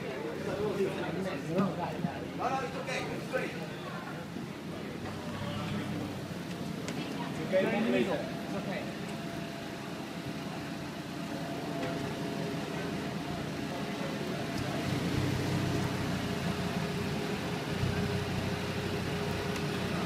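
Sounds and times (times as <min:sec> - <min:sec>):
car engine idling: 0:08.2 - 0:20.0.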